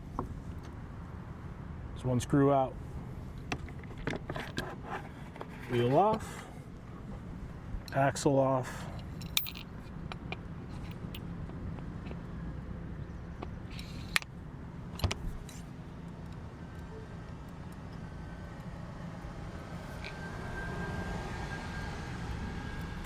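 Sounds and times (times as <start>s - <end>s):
low outdoor background rumble: 0.0s - 23.0s
small parts clicking and knocking: 8.9s - 12.3s, 13.4s - 14.3s.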